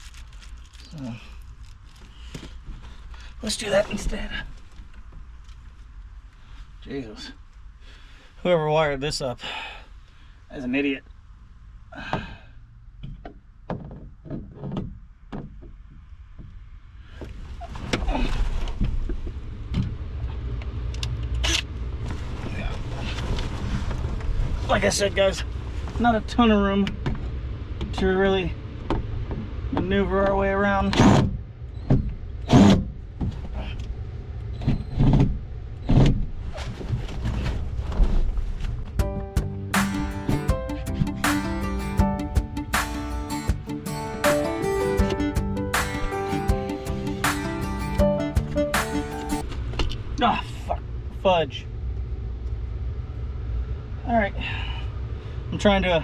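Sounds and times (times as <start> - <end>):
guitar music: 39.0 - 49.4.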